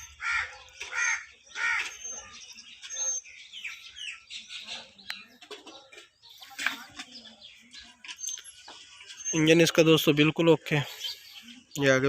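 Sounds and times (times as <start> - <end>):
small birds chirping: 0.0 - 12.0
crow cawing: 0.1 - 1.9.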